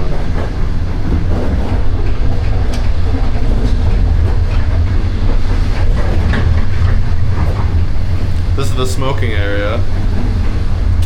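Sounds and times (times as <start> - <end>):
train carriage rumbling on rails: 0.0 - 11.0.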